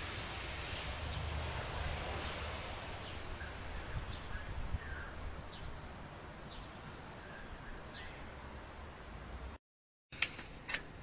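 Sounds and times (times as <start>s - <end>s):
birds chirping: 2.2s - 9.5s.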